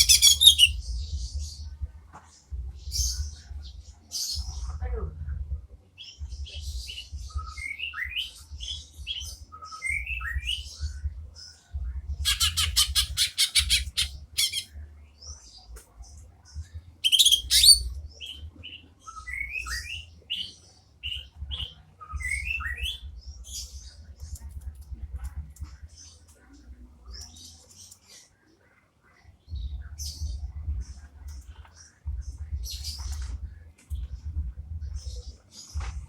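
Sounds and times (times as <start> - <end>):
bird chirping and rattling: 0.0 - 1.0, 12.2 - 14.7, 17.0 - 17.9.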